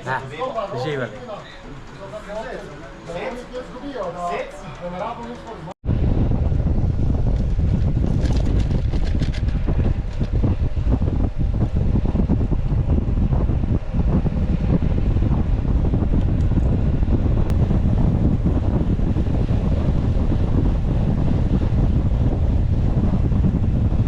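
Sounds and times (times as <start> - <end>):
wind buffeting microphone: 5.8 - 24.0.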